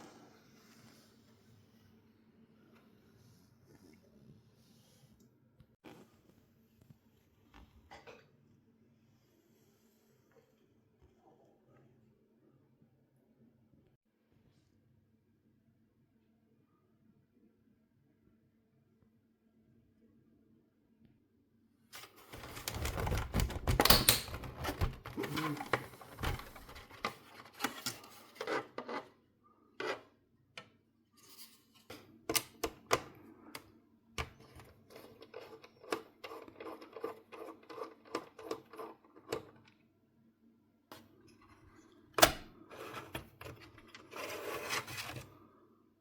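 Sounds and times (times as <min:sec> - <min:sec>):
rubbing and scraping: 0:22.0 - 0:29.2, 0:42.7 - 0:45.4.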